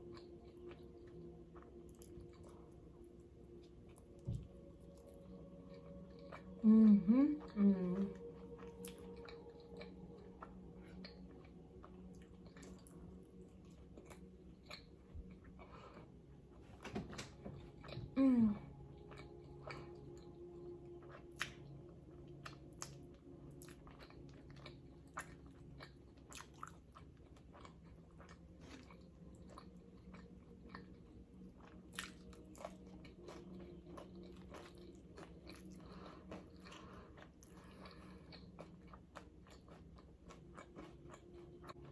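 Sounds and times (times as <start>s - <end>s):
wet chewing: 21.0s - 41.9s.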